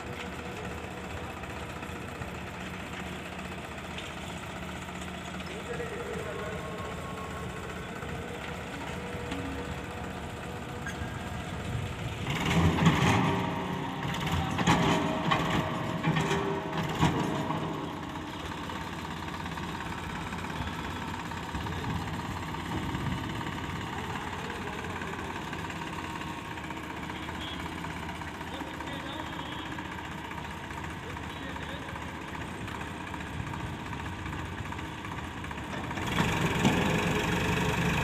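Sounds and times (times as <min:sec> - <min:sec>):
tractor diesel engine running: 0:00.0 - 0:38.0
engine clattering knocks: 0:10.3 - 0:27.1.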